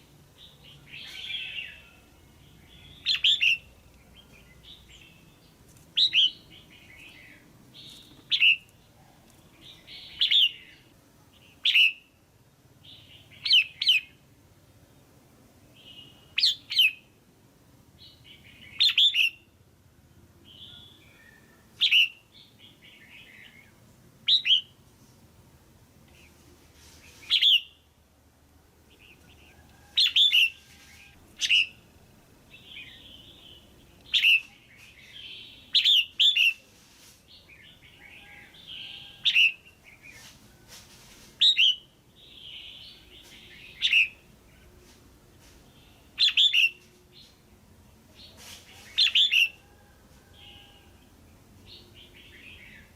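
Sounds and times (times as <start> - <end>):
bird sharp chirps: 2.6 - 5.1, 6.0 - 8.7, 45.8 - 46.8.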